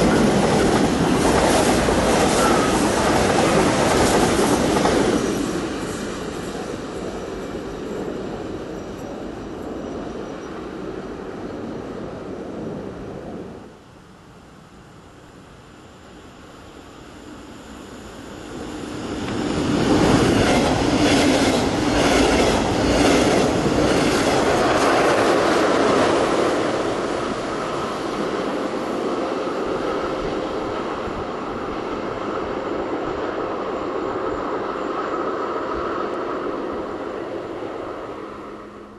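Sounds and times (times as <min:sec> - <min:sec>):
train passing at speed: 0:00.0 - 0:38.9.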